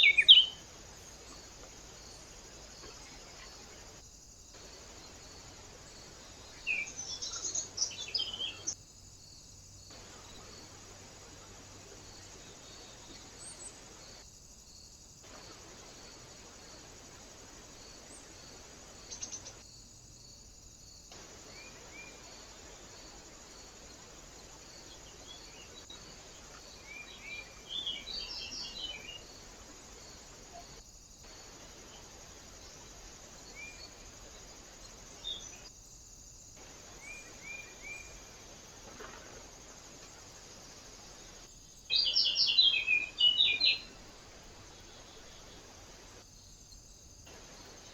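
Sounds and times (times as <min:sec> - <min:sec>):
small birds chirping: 0:00.0 - 0:04.0, 0:04.6 - 0:08.8, 0:24.3 - 0:29.4, 0:40.9 - 0:47.0
steady hiss: 0:00.0 - 0:47.9.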